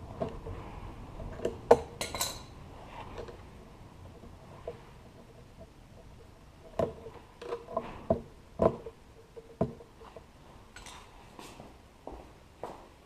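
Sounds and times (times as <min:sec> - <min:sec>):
hand tools clinking and knocking: 0:01.3 - 0:03.3, 0:06.8 - 0:11.2.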